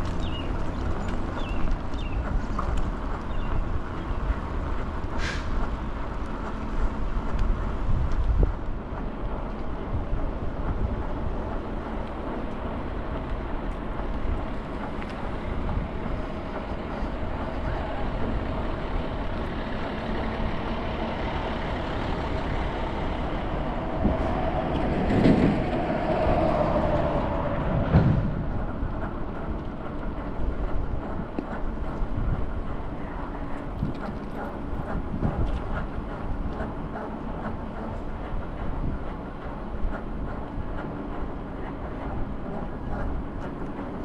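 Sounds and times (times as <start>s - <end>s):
street traffic: 0.0s - 44.0s
wind rumble: 0.0s - 44.0s
vehicle passing close by: 21.8s - 28.7s.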